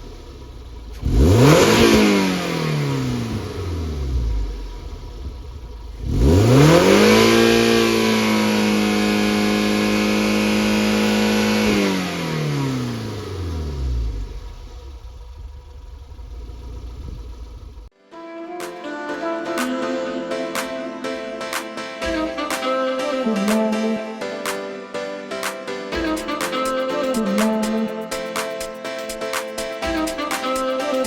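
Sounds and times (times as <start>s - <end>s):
car engine revving and idling: 0.0s - 17.9s.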